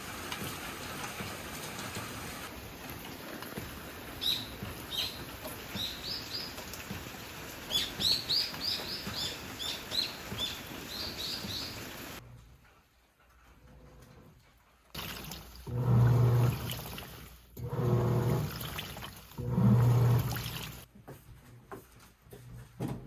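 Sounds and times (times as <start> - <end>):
steady rain: 0.0 - 12.2
small bird chirping: 4.2 - 6.6, 7.7 - 11.9.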